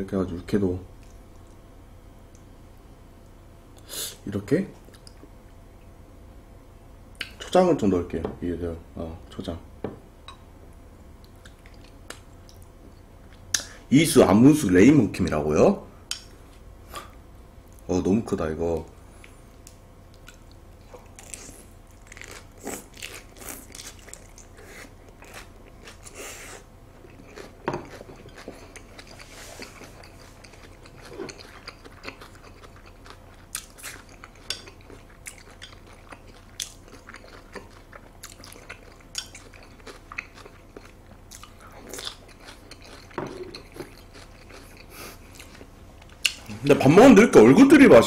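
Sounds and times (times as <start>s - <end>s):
person chewing lettuce: 11.2s - 13.7s, 20.1s - 46.6s.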